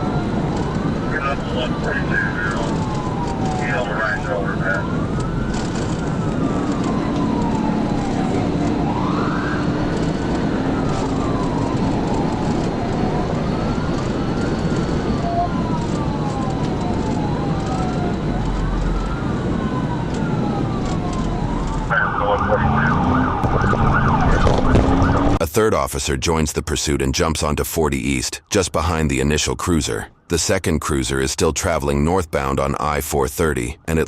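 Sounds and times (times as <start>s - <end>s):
police siren wailing: 0.0s - 25.4s
road and wind noise: 0.0s - 34.0s.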